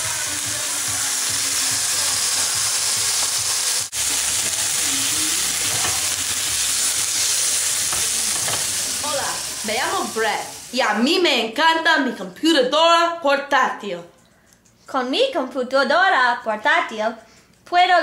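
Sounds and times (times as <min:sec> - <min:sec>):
chicken sizzling in hot oil: 0:00.0 - 0:11.0
spatula turning food in a pan: 0:00.5 - 0:10.4.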